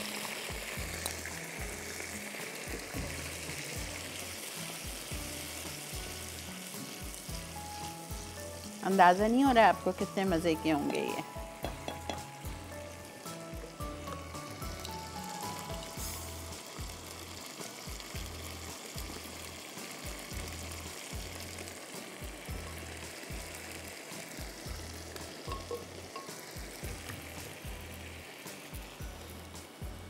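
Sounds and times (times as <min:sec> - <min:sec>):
background music with low beat: 0:00.0 - 0:30.0
paste sizzling in a frying pan: 0:00.0 - 0:30.0.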